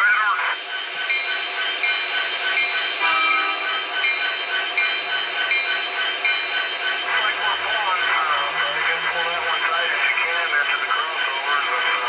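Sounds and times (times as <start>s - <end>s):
diesel locomotive rumble: 0.0s - 12.0s
locomotive bell ringing: 0.5s - 12.0s.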